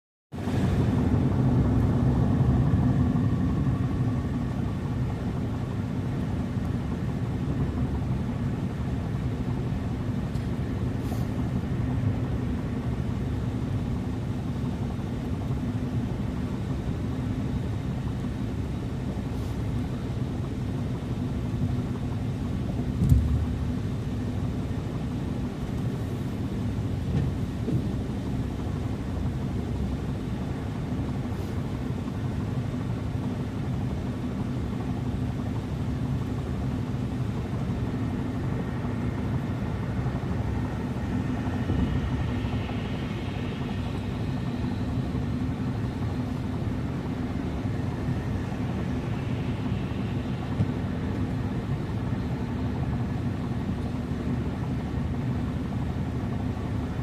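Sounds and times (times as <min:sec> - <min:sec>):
car road and engine rumble: 0:00.3 - 0:57.0
short thump: 0:23.0 - 0:23.6.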